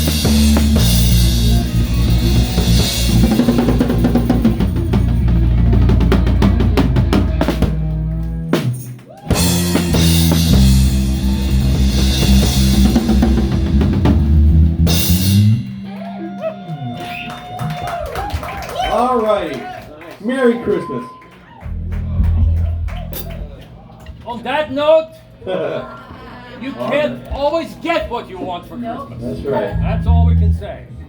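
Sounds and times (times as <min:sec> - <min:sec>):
drum kit: 0:00.0 - 0:18.6, 0:21.7 - 0:23.8
live rock band playing: 0:00.0 - 0:18.6, 0:21.6 - 0:23.8.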